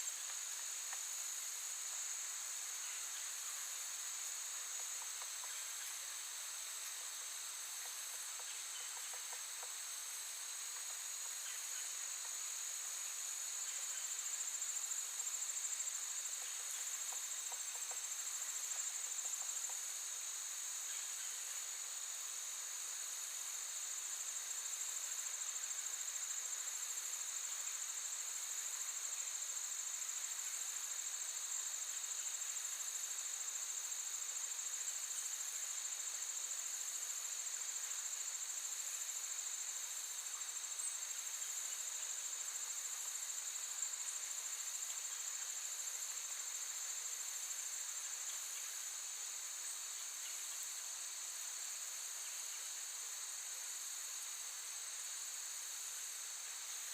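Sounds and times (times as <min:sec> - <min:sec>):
crickets trilling: 0:00.0 - 0:56.9.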